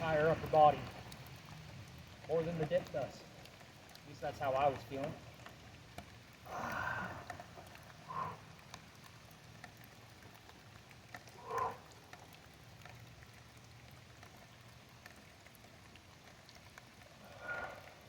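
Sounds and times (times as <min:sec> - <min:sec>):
light rain pattering: 0:00.0 - 0:18.0
short breaths: 0:06.5 - 0:07.4, 0:08.0 - 0:08.6, 0:11.4 - 0:11.8, 0:17.2 - 0:18.0.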